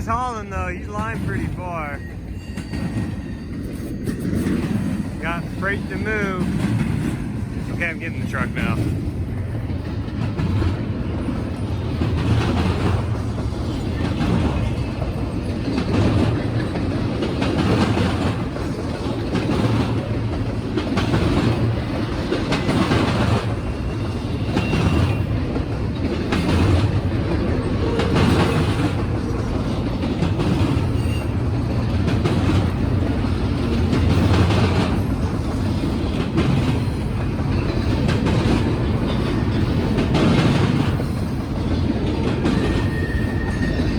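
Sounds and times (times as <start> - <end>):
freight train rumbling on rails: 0.0 - 43.9
wheels clacking over rail joints: 8.8 - 43.9.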